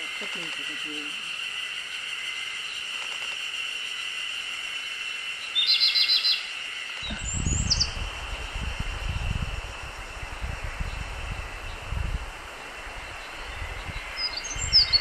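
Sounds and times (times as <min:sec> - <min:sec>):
songbird trill: 0:00.0 - 0:08.0, 0:10.6 - 0:15.0
high falling bird calls: 0:05.4 - 0:08.0, 0:12.6 - 0:15.0.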